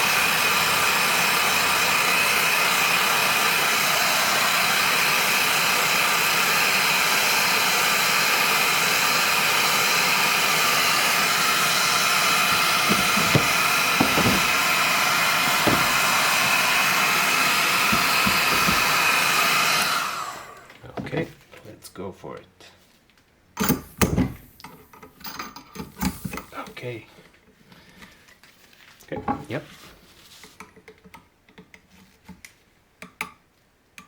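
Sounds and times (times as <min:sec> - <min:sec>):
heat gun blowing with high whine: 0:00.0 - 0:20.6
light knocks: 0:12.5 - 0:14.6, 0:15.6 - 0:16.0.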